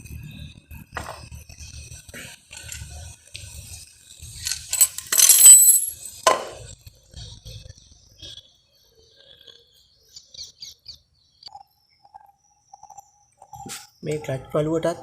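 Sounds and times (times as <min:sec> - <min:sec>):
metal tools clinking and scraping: 0:04.4 - 0:06.6
sharp metallic clink: 0:04.5 - 0:06.3.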